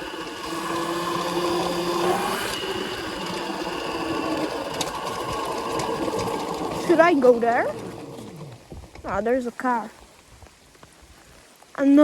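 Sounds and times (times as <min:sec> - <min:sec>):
rushing noise: 0:00.0 - 0:08.0
electric motor whining: 0:00.0 - 0:09.2.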